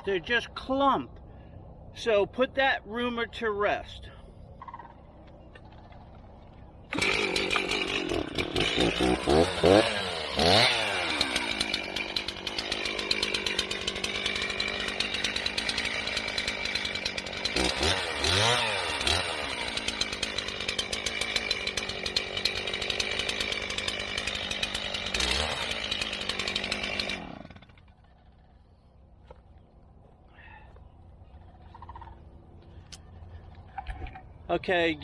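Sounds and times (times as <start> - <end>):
chainsaw engine idling and revving: 6.0 - 28.6.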